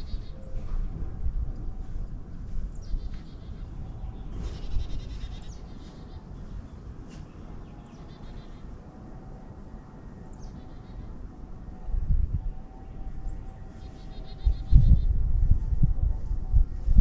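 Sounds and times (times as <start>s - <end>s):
birds calling: 0.0s - 0.9s, 2.3s - 9.0s, 9.7s - 11.6s, 12.4s - 15.2s
steady low rumble: 0.0s - 17.0s
buzzy bird trill: 13.1s - 15.2s.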